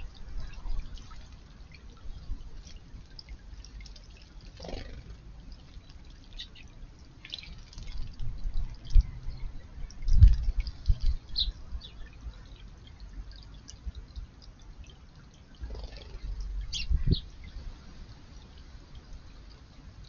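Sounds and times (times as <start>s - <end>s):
water dripping and splashing: 0.0s - 20.0s.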